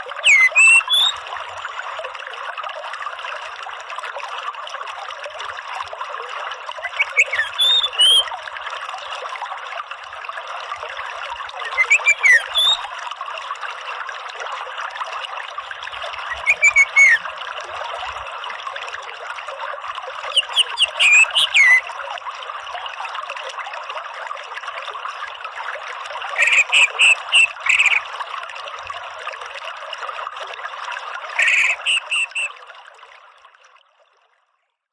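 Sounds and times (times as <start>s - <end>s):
trickle of running water: 0.0s - 34.9s
bird singing sliding notes: 0.2s - 1.1s, 6.8s - 8.2s, 11.7s - 12.8s, 16.3s - 17.2s, 20.4s - 21.8s, 26.4s - 28.0s, 31.4s - 32.5s.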